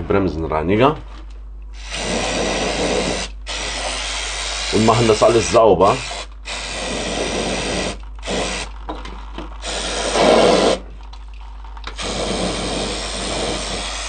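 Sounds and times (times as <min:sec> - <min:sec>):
aerosol spray hissing: 0:01.8 - 0:08.7, 0:09.6 - 0:10.8, 0:11.9 - 0:14.0.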